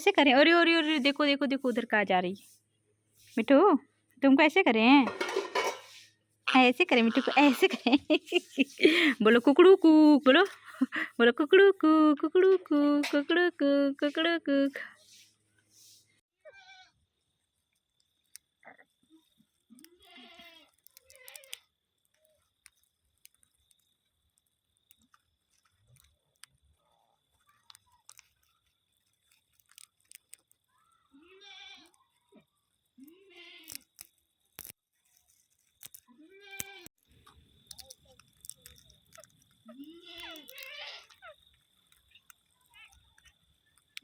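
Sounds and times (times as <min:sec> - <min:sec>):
small clicks: 0:17.7 - 0:18.6, 0:19.2 - 0:30.8, 0:33.0 - 0:44.0.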